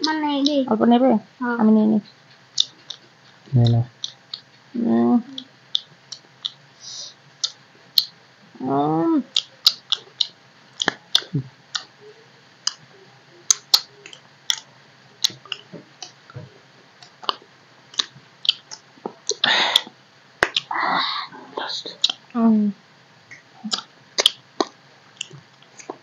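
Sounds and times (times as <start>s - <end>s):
lips smacking while chewing: 2.0s - 4.5s, 5.4s - 6.6s, 7.4s - 8.1s, 9.3s - 11.9s, 13.5s - 16.4s, 17.0s - 20.7s, 22.0s - 22.3s, 23.3s - 26.0s
voice humming: 3.5s - 3.9s, 20.6s - 22.8s.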